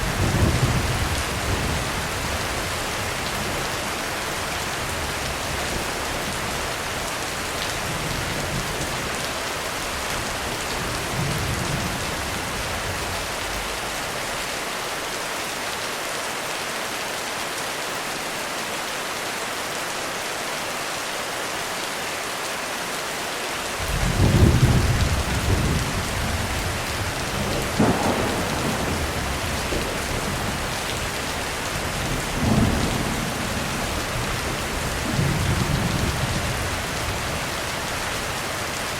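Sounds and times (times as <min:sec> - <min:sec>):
thunder rumbling: 0:00.0 - 0:03.6, 0:09.9 - 0:15.1, 0:23.8 - 0:38.4
heavy rain on a roof: 0:00.0 - 0:38.9.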